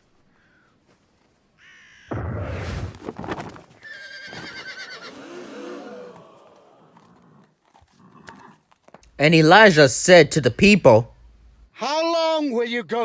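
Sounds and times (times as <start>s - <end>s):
horse whinnying: 3.8s - 8.6s.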